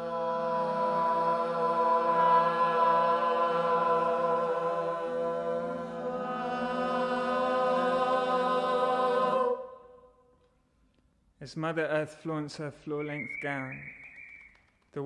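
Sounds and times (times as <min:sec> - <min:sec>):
choir singing a sustained chord: 0:00.0 - 0:10.2.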